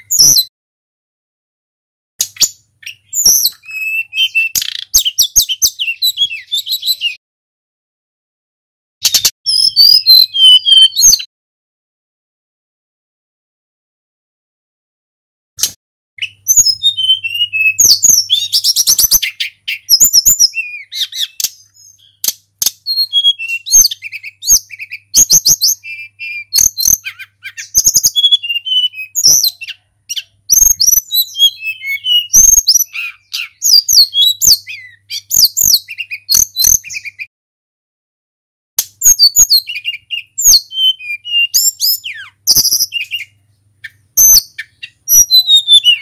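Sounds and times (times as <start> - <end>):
songbird whistling and trilling: 0.0 - 0.5, 2.2 - 7.2, 9.0 - 11.3, 15.6 - 37.3, 38.8 - 46.0.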